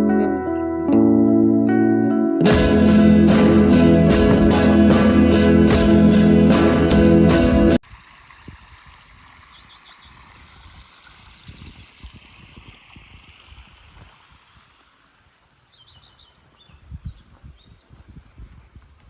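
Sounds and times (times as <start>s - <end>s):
steady hiss: 7.8s - 15.9s
bird chirping: 9.3s - 10.3s, 15.5s - 18.5s.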